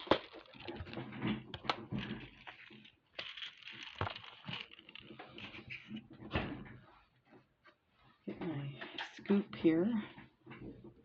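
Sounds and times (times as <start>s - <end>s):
beads clicking and rattling: 1.6s - 5.6s.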